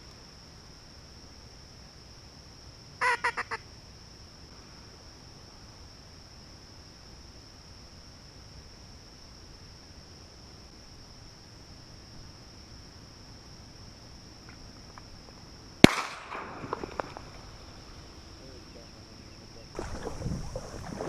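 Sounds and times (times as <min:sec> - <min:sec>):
shotgun shot: 0:15.8 - 0:17.2.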